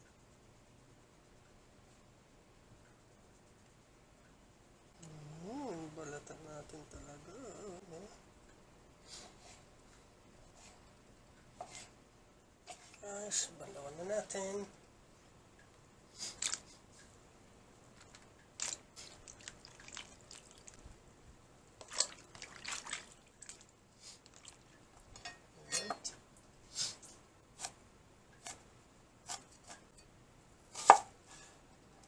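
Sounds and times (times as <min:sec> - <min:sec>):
mushrooms cleaned in water: 0:16.2 - 0:16.9, 0:17.9 - 0:21.1, 0:21.7 - 0:25.2.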